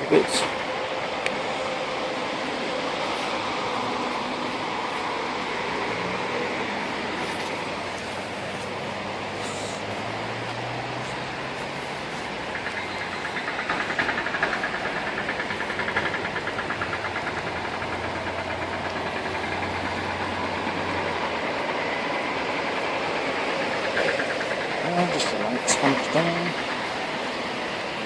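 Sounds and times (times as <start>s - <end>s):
engine humming: 0.0s - 28.0s
steady noise: 0.0s - 28.0s
rapid regular ticking: 12.4s - 27.1s.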